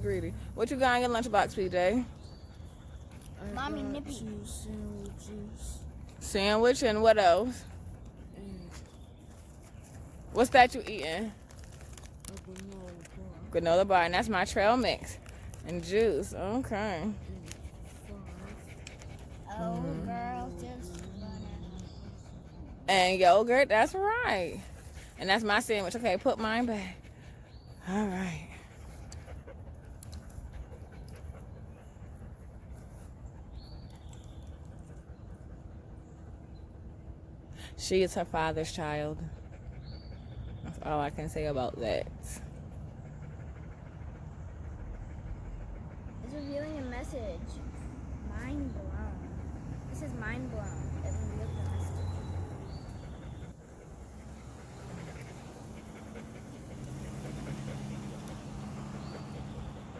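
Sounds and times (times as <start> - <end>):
dog panting: 0.0 - 59.9.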